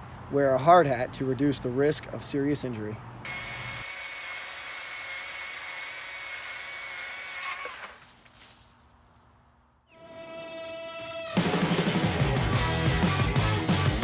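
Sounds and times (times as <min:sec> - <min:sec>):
chainsaw whining: 0:03.3 - 0:08.4.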